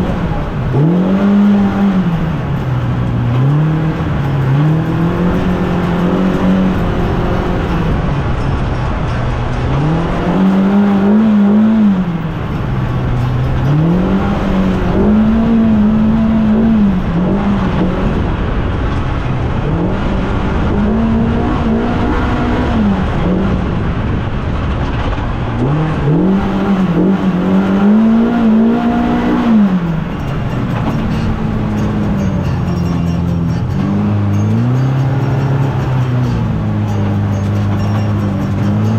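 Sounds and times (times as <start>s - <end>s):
engine revving: 0.0s - 38.9s.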